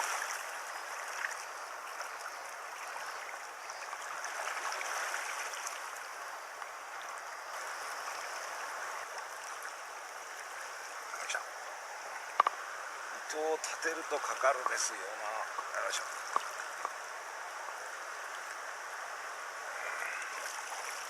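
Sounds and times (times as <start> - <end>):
river water rushing: 0.0 - 21.0
faint clicks: 12.3 - 12.6, 16.2 - 17.0.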